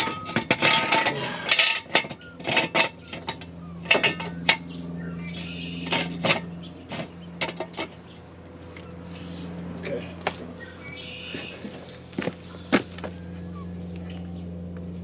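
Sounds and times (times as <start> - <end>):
metal clanks and clinks: 0.0 - 8.2
steady low hum: 0.0 - 15.0.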